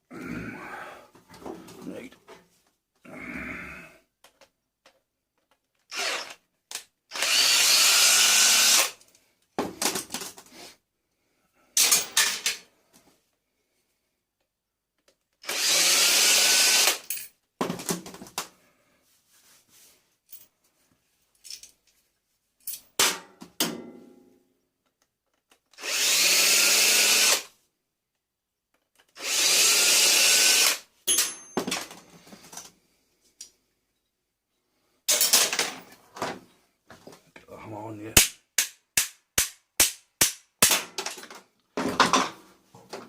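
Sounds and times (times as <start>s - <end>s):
power drill motor whine: 5.9s - 6.4s, 7.1s - 8.9s, 15.4s - 17.0s, 25.8s - 27.4s, 29.2s - 30.8s
metal clinks and knocks: 31.1s - 32.0s.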